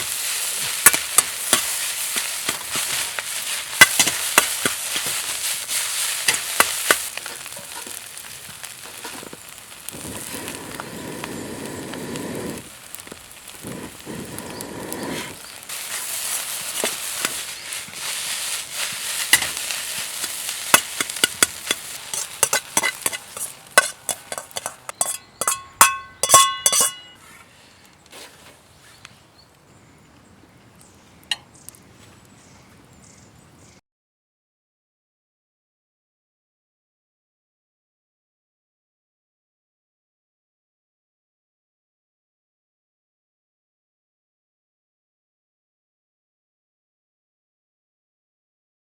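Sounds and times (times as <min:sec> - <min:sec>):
rice sizzling in a wok: 0:00.0 - 0:27.3
stirring and scraping wok: 0:00.0 - 0:27.5
metallic clinks on wok: 0:20.2 - 0:27.2.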